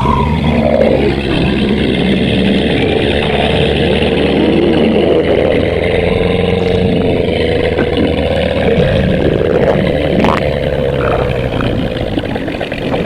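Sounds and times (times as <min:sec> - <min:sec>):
stomach growling rumble: 0:00.0 - 0:13.0.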